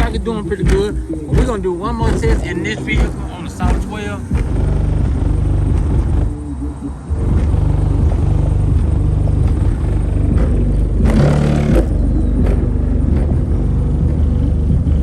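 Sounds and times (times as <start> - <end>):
bass-heavy music from subwoofers: 0.0 - 15.0
short noisy burst: 11.1 - 11.9.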